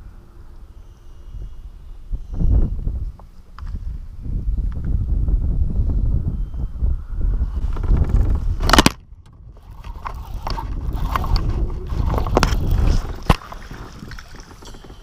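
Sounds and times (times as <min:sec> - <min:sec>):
wind rumble on microphone: 0:00.0 - 0:15.0
knocks and scrapes in kayak: 0:07.6 - 0:15.0.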